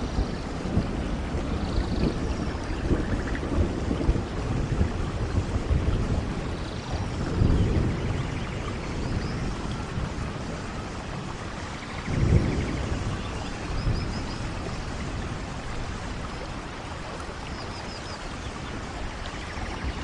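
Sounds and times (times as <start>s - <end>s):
rolling thunder: 0.0s - 20.0s
steady rain: 0.0s - 20.0s.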